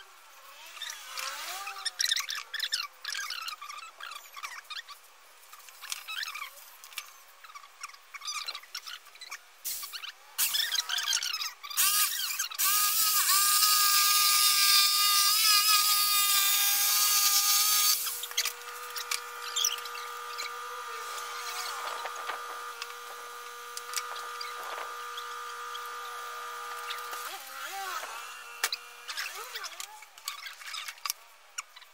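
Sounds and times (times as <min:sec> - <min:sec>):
electric jigsaw cutting wood: 0:00.5 - 0:01.9, 0:11.8 - 0:30.0
faint steady hum: 0:14.9 - 0:31.9.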